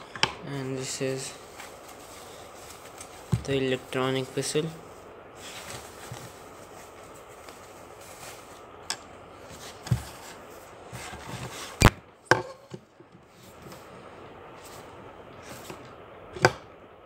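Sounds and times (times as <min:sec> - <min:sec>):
plastic packaging rubbing: 0:01.1 - 0:08.7.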